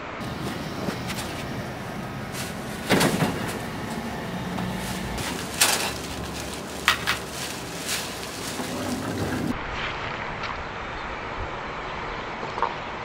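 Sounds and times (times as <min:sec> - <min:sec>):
steady background noise: 0:00.0 - 0:13.0
sharp knocks and clatters: 0:02.4 - 0:04.1.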